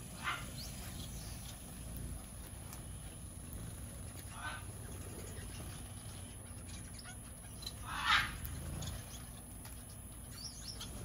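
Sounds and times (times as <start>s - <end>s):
wings fluttering: 0.0s - 11.0s
faint high bird chirps: 4.0s - 11.0s.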